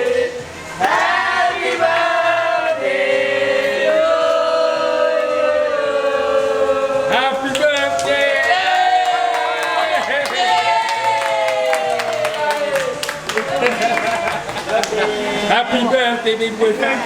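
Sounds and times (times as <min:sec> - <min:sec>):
people singing a celebration song: 0:00.0 - 0:09.0.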